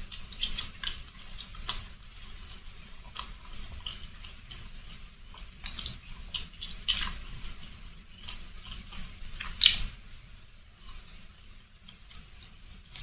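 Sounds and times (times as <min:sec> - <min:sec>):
wet mouth clicks and slurps: 0:00.0 - 0:09.9.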